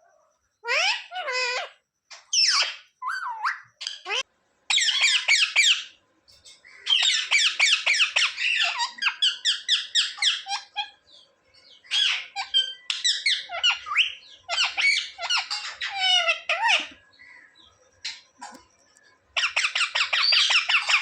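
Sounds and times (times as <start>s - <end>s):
parrot squawking: 0.6s - 5.9s, 6.8s - 11.0s, 11.8s - 17.0s, 19.4s - 21.0s.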